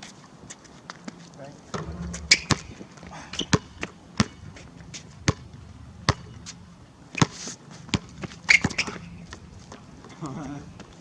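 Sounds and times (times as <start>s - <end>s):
basketball bouncing on a court: 1.7s - 5.5s, 6.1s - 6.6s, 7.2s - 9.9s.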